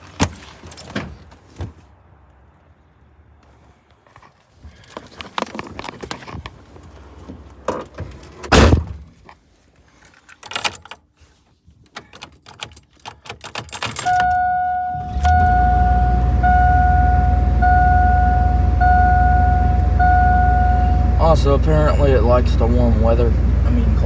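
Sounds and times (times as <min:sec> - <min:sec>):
keys jangling: 0:11.9 - 0:14.4
truck engine starting and idling: 0:12.8 - 0:24.0
warning chime beeping: 0:14.0 - 0:22.3.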